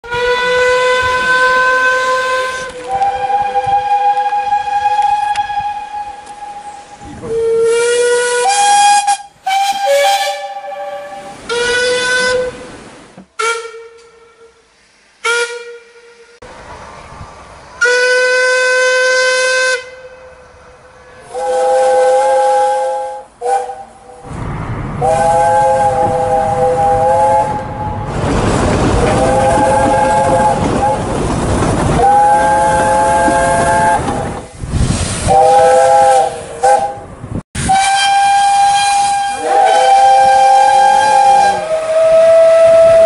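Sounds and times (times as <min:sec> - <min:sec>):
steam locomotive whistle blasts: 0:00.0 - 0:12.8, 0:13.4 - 0:16.4, 0:17.8 - 0:20.5, 0:21.1 - 0:24.2, 0:25.0 - 0:28.1, 0:29.2 - 0:31.0, 0:32.0 - 0:34.3, 0:35.2 - 0:43.0
steam hissing: 0:01.5 - 0:13.5, 0:21.2 - 0:37.0, 0:37.6 - 0:43.0.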